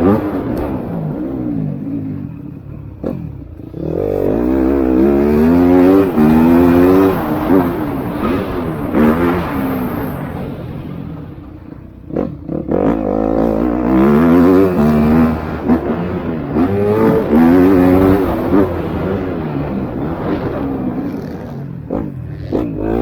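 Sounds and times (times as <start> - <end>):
motocross engines revving: 0.0 - 23.0.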